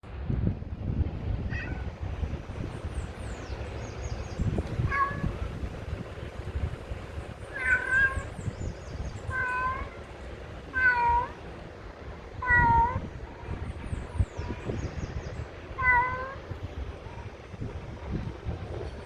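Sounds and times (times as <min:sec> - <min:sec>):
steady low rumble: 0:00.0 - 0:19.0
cat meowing: 0:01.5 - 0:01.9, 0:04.8 - 0:05.6, 0:07.5 - 0:08.4, 0:09.3 - 0:10.1, 0:10.7 - 0:11.4, 0:12.4 - 0:13.2, 0:15.8 - 0:16.5
small birds chirping: 0:02.3 - 0:11.6, 0:13.4 - 0:15.7.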